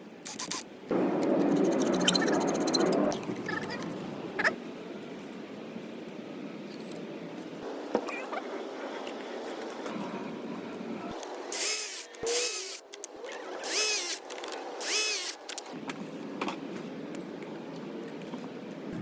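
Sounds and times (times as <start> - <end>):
power tool whining: 13.6 - 15.5.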